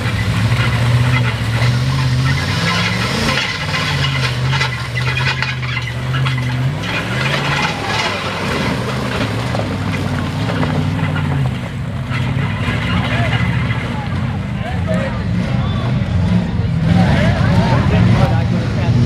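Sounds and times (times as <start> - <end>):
truck engine revving: 0.0 - 19.0.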